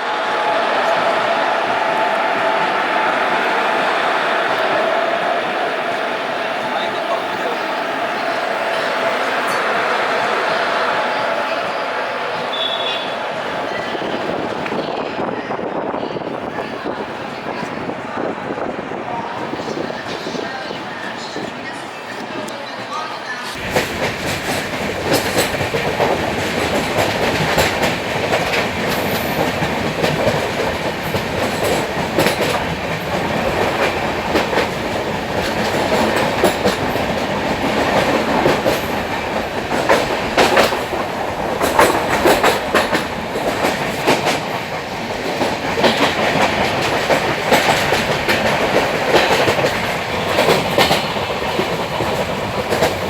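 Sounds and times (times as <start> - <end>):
train rumbling: 0.0 - 53.0
wheels clacking over rail joints: 23.6 - 53.0.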